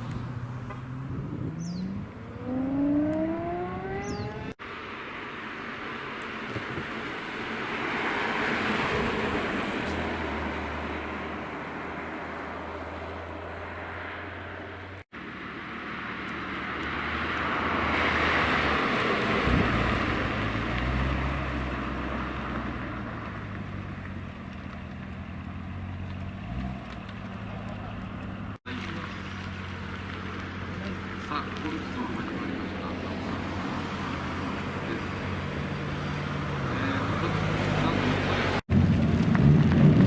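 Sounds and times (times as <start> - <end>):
low engine hum: 0.0 - 40.0
sports cars driving past: 0.0 - 40.0.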